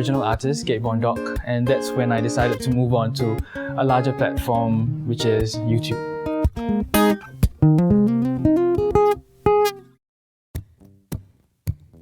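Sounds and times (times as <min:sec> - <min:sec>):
acoustic guitar plucked notes: 0:00.0 - 0:10.0.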